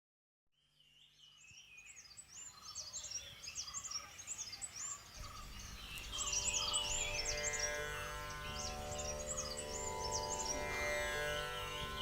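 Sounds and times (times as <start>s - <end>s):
small birds chirping: 0.6s - 12.0s.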